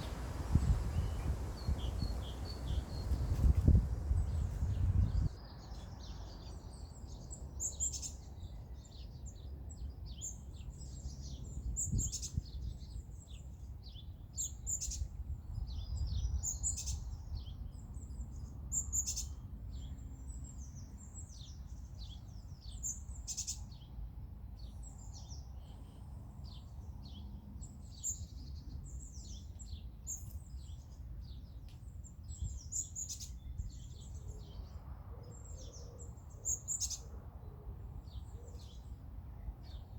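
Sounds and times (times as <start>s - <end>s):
low background rumble: 0.0s - 5.4s
songbirds chirping and trilling: 0.0s - 39.9s.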